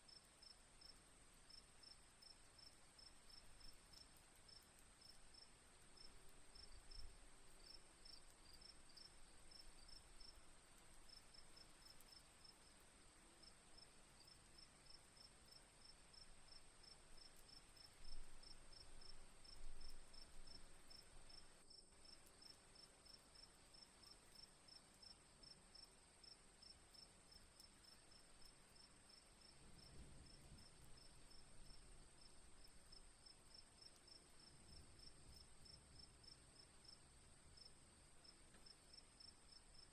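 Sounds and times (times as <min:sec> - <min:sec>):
crickets chirping: 0:00.1 - 0:39.9.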